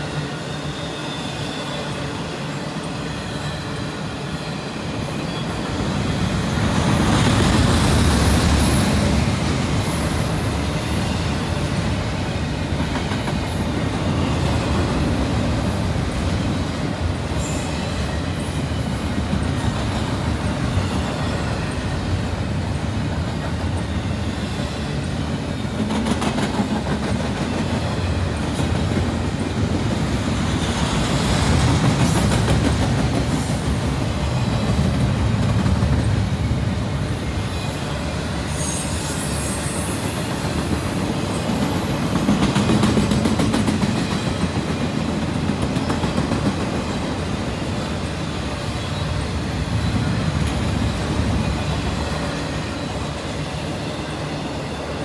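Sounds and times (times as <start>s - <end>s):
high wheel squeal: 0.0s - 6.9s, 36.1s - 42.0s
freight train rumbling on rails: 0.0s - 55.0s.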